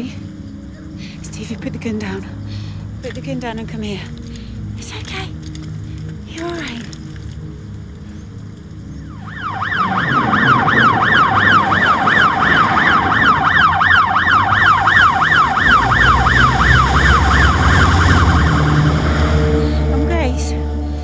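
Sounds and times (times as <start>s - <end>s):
low rumble: 0.0s - 21.0s
siren on fast yelp: 9.1s - 19.6s.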